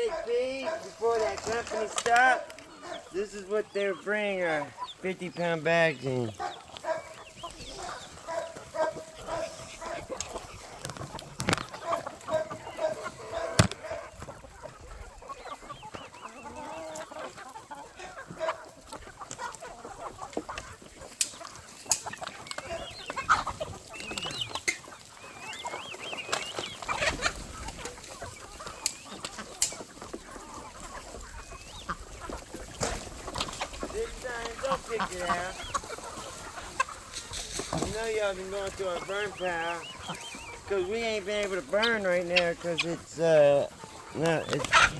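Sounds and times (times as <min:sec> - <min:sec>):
chickens clucking: 0:00.0 - 0:44.9.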